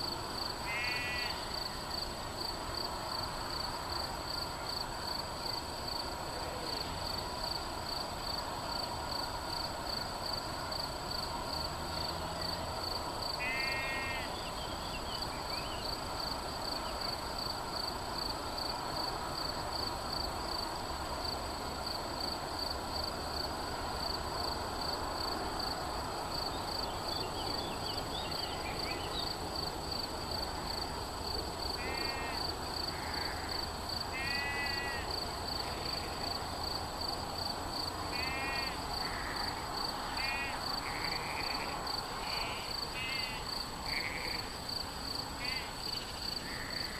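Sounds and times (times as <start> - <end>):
background hiss: 0.0 - 46.9
insect chirring: 30.7 - 36.4, 37.0 - 46.9.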